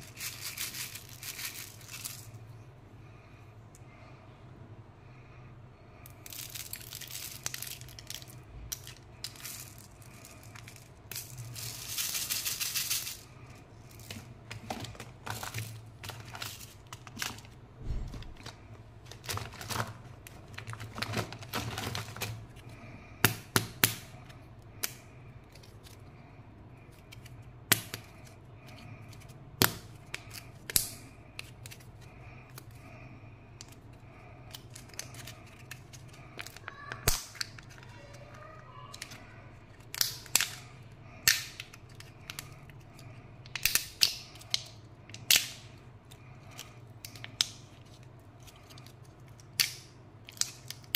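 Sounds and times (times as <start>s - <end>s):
plastic wrappers crinkling: 0.0s - 2.4s, 6.1s - 22.8s, 33.6s - 50.9s
faint steady hum: 0.0s - 50.9s.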